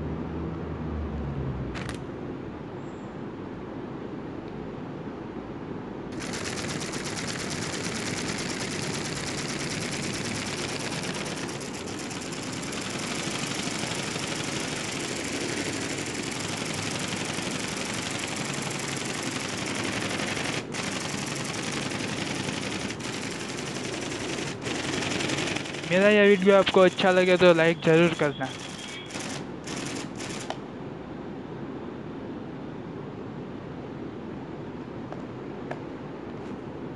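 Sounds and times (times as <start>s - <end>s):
motor mechanism clicking rattle: 6.2s - 30.6s.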